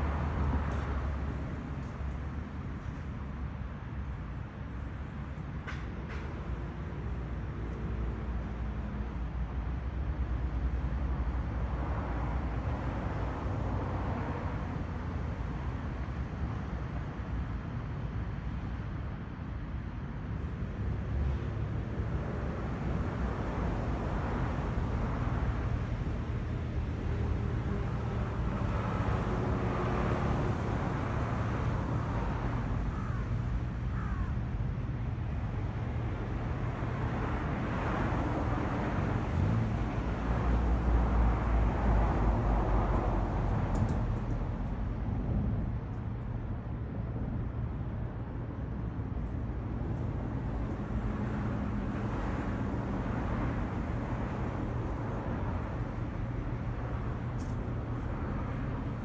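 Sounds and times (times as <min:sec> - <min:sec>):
cars passing: 0:00.0 - 0:09.4, 0:20.8 - 0:34.3, 0:35.3 - 0:48.1, 0:48.7 - 0:59.0
low traffic rumble: 0:00.0 - 0:59.0.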